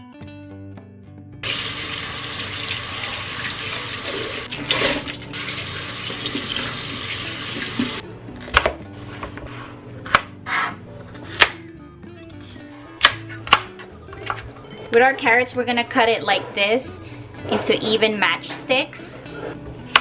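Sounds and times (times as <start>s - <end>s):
tap water running into sink: 1.4s - 8.0s.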